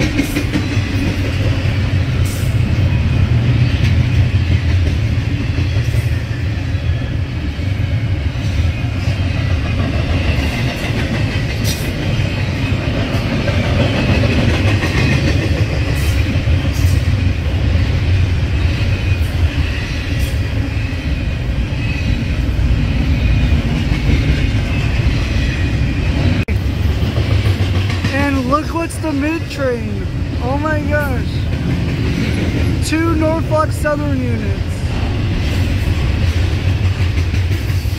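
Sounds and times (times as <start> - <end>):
sharp clicks of train cars on track: 0.0 - 2.8, 3.4 - 6.6, 8.4 - 20.6, 26.2 - 29.4, 31.0 - 32.9, 34.9 - 37.9
train wheels rumbling on rails: 0.0 - 37.9.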